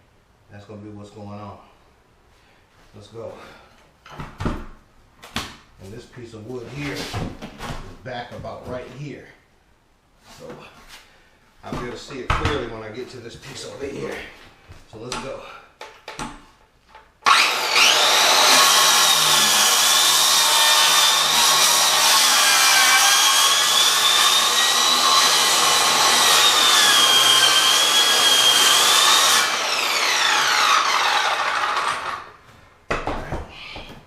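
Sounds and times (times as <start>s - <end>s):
circular saw cutting wood: 17.2s - 32.4s
saw winding down: 17.2s - 32.4s.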